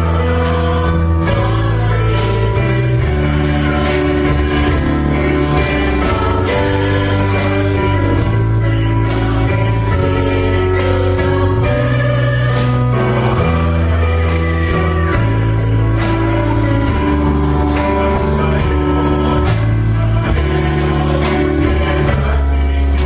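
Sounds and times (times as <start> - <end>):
choir singing worship song: 0.0 - 23.0
instrumental accompaniment with beat: 0.0 - 23.0.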